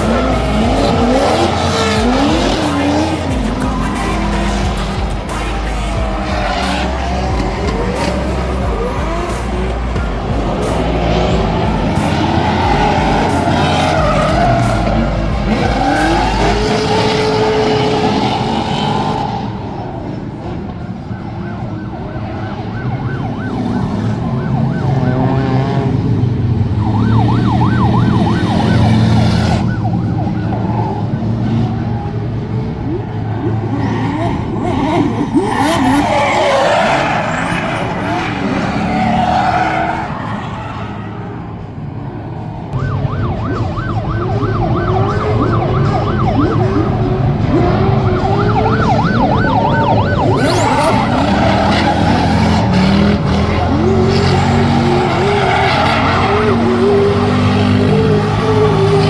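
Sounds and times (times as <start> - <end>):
tyres squealing: 0.0 - 20.1, 44.8 - 59.0
car engine revving hard: 0.0 - 41.4, 43.7 - 59.0.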